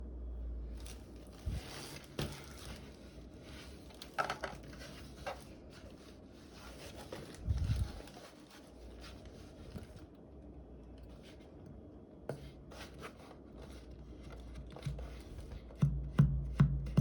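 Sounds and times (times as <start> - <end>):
packaging rustling and scraping: 0.8 - 10.1, 12.4 - 15.7.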